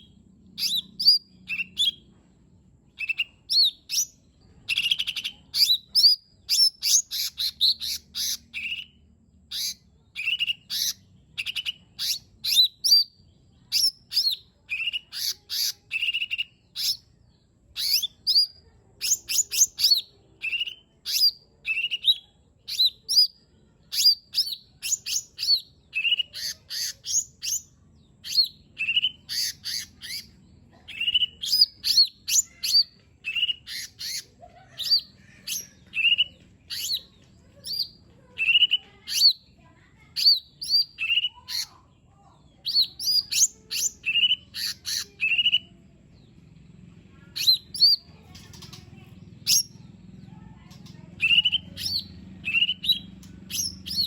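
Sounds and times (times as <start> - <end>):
bird chirping and whistling: 0.6 - 2.0, 3.0 - 13.1, 13.7 - 17.0, 17.8 - 23.3, 23.9 - 30.3, 30.9 - 34.2, 34.8 - 37.1, 37.7 - 39.4, 40.2 - 41.7, 42.6 - 45.7, 47.4 - 48.0, 49.5 - 49.8, 51.2 - 54.0.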